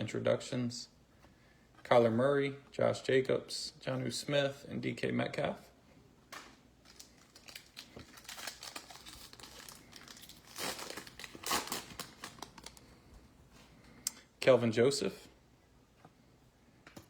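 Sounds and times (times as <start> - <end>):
wrapper tearing and crinkling: 6.8 - 12.9.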